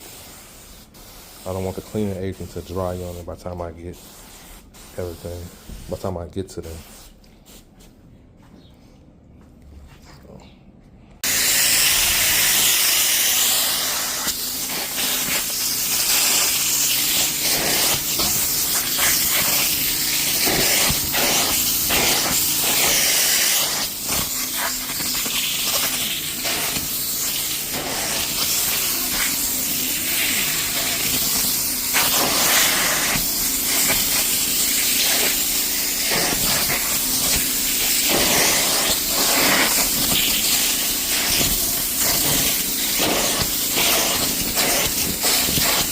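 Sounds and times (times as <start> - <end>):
hiss of spray and suction: 11.2 - 45.9
tool scraping fabric: 12.2 - 45.9.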